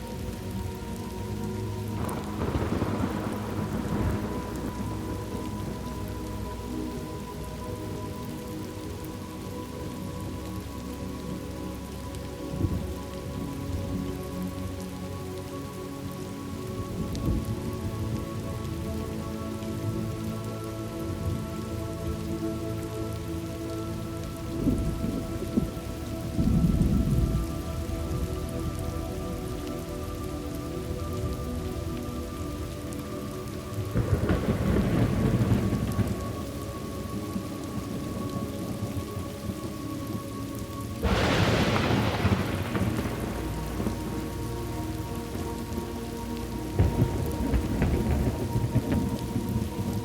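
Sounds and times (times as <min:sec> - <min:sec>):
thunder rumbling: 0:00.0 - 0:11.6, 0:16.8 - 0:50.0
low drone of steady tones: 0:00.0 - 0:50.0
steady rain: 0:00.0 - 0:50.0
loud thunderclap: 0:02.0 - 0:05.4, 0:34.0 - 0:36.4, 0:41.0 - 0:44.4, 0:46.8 - 0:49.6.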